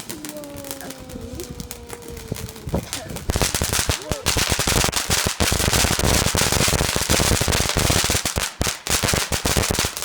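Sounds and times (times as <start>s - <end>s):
firecrackers banging and crackling: 0.0s - 10.0s.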